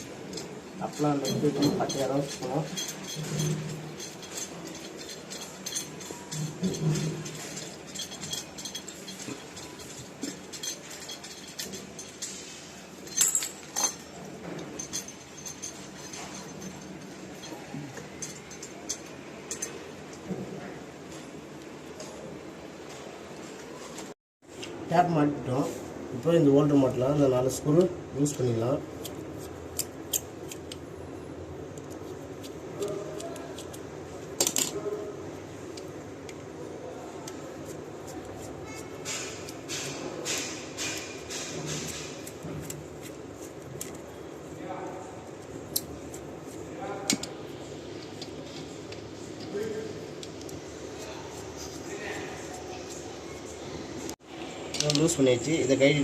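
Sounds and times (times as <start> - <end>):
metallic clinks and taps: 0.3 - 20.4.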